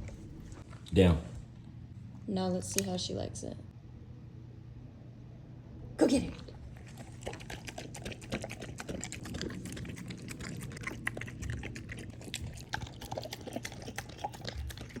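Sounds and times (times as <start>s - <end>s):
dog crunching food: 6.6s - 15.0s.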